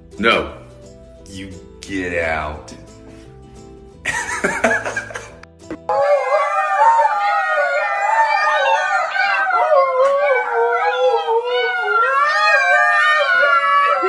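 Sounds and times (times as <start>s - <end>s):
dogs howling: 5.9s - 14.0s.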